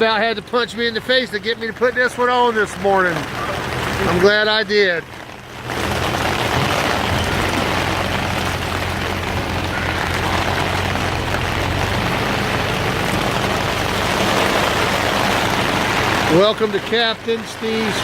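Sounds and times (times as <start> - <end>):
engine humming: 0.0 - 18.0
rain on plastic tarp: 0.0 - 18.0.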